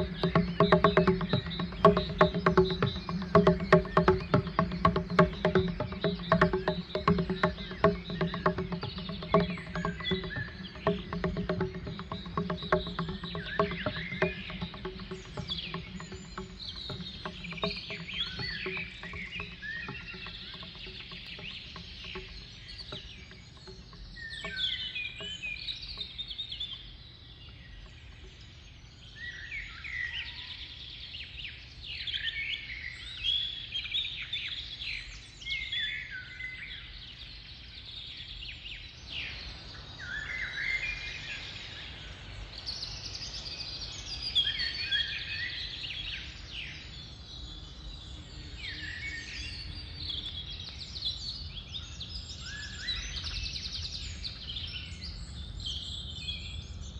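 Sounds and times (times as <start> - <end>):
birds chirping and warbling: 0.0 - 56.9.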